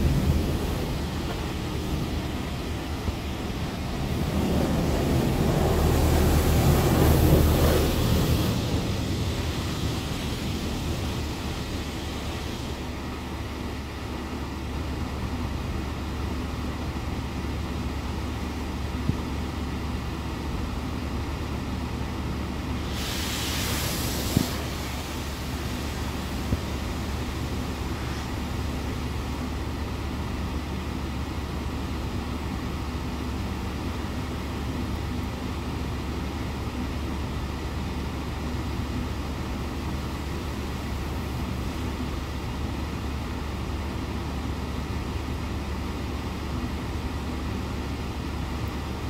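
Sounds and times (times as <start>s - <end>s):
hissing burst: 0.0s - 13.0s, 22.8s - 28.4s
car wash machinery rumbling: 0.0s - 49.0s.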